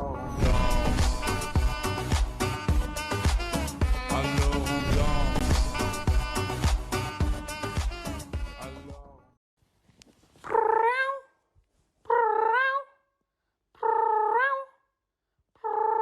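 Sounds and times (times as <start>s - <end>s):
music: 0.0s - 9.4s.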